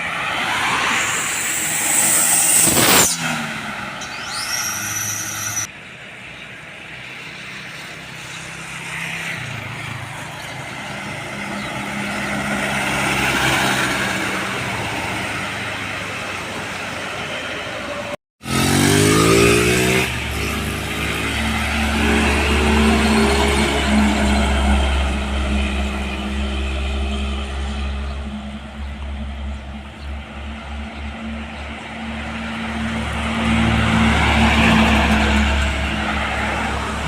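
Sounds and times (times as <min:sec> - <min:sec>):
vehicles passing by: 0:00.0 - 0:37.0
short rising whine: 0:00.5 - 0:05.7
diesel engine pulling away: 0:18.4 - 0:37.0.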